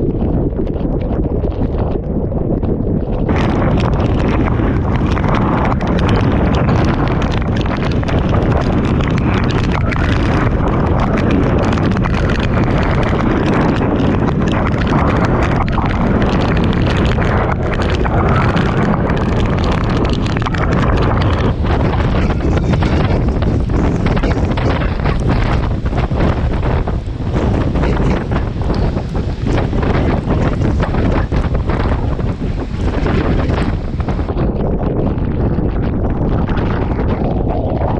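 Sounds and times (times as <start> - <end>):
strong wind blowing: 0.0 - 37.9
torrential rain lashing: 0.0 - 37.9
wind buffeting microphone: 0.0 - 37.9.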